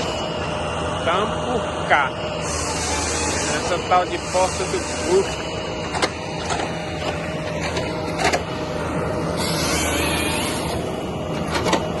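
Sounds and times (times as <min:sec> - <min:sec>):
engine running with low hum: 0:00.0 - 0:12.0.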